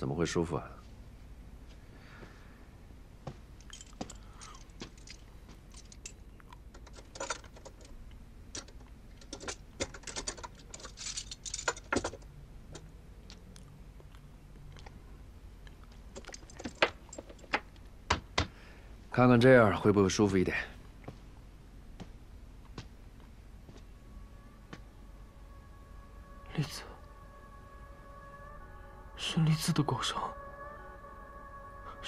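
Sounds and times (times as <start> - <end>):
handcuffs unlocking clicks and jingling: 3.6 - 7.9, 8.5 - 12.2, 16.1 - 17.6.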